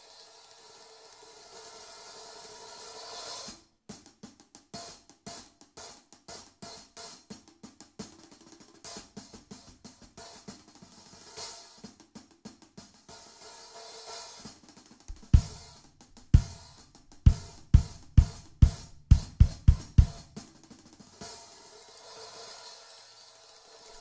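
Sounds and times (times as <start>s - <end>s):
crisp stick strokes on cymbal: 21.0s - 24.0s.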